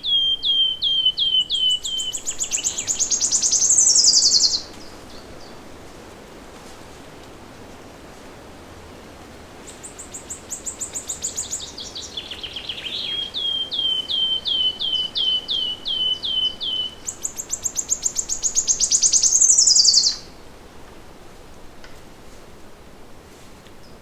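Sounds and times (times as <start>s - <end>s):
songbird singing: 0.0s - 5.8s, 9.6s - 20.5s
faint forest background hiss: 0.0s - 24.0s.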